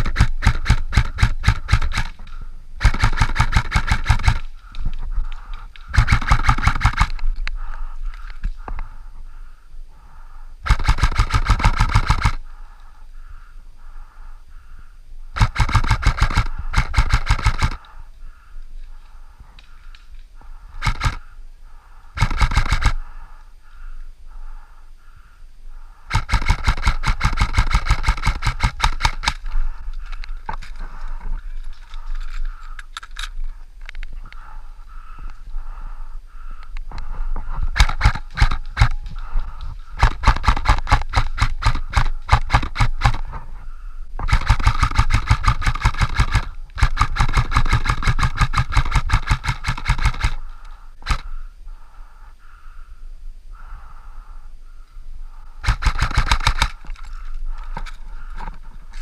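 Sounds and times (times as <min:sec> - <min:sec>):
airsoft guns firing bursts: 0:00.0 - 0:04.6, 0:05.9 - 0:07.3, 0:10.6 - 0:12.4, 0:15.4 - 0:17.9, 0:20.7 - 0:21.2, 0:22.2 - 0:23.1, 0:26.1 - 0:29.6, 0:37.7 - 0:43.4, 0:44.2 - 0:51.3, 0:55.6 - 0:56.9.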